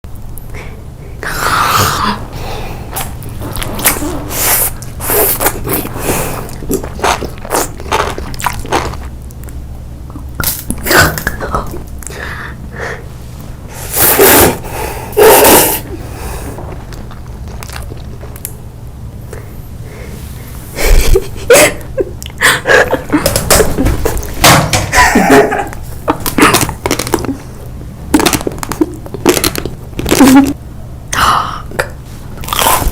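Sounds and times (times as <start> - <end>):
person biting and chewing: 2.9 - 11.4, 16.7 - 18.6, 26.1 - 27.4, 28.1 - 30.5, 32.4 - 32.9.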